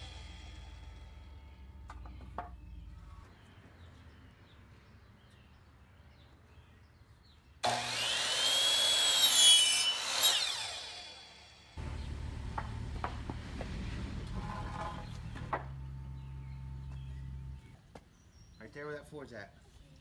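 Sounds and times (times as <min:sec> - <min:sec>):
steady low noise: 0:00.0 - 0:02.0, 0:11.8 - 0:17.6
electric miter saw cutting wood: 0:07.6 - 0:15.8.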